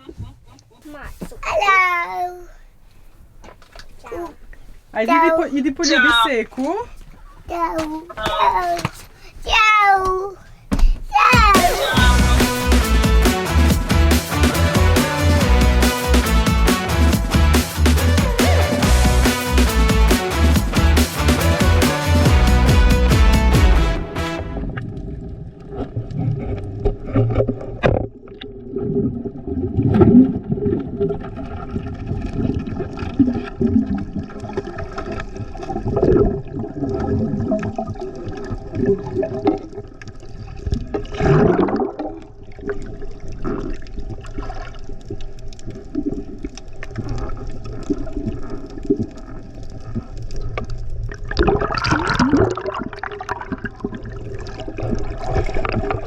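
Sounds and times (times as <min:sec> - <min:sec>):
water sloshing and gurgling: 0:00.0 - 0:12.8, 0:24.2 - 0:56.0.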